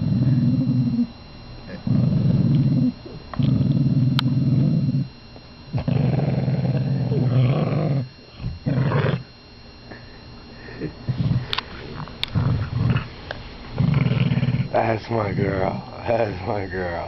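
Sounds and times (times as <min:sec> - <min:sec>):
puppy growling: 0:00.0 - 0:01.1, 0:01.7 - 0:05.1, 0:05.7 - 0:09.3, 0:11.0 - 0:16.0.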